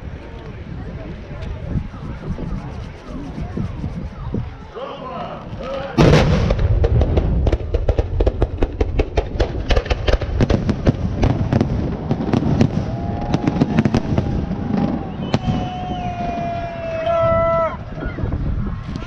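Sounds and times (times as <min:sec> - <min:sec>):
steady high tone: 0:01.6 - 0:05.0
firework shell bursts and crackling: 0:06.0 - 0:12.7
loud firework bang: 0:06.0 - 0:16.3.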